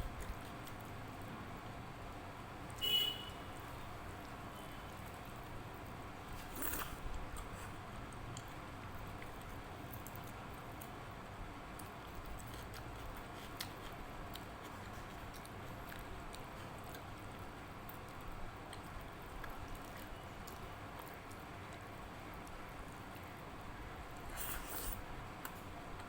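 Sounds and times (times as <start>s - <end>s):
chewing and wet squishing: 4.0s - 23.6s.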